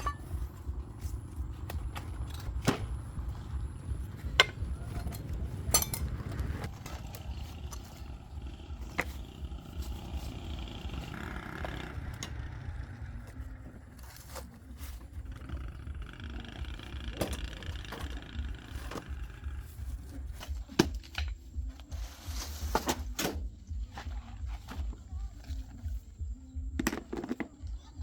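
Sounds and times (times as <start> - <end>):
steady low rumble: 0.0 - 11.0
tools clicking and knocking: 4.1 - 7.9.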